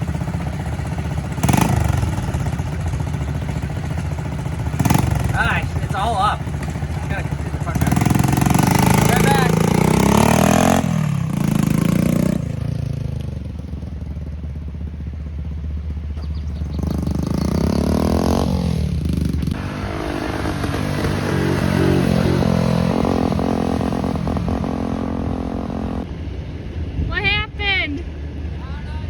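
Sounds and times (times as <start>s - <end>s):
small motorbike engine revving: 0.0s - 3.7s, 4.4s - 13.8s, 16.2s - 26.1s.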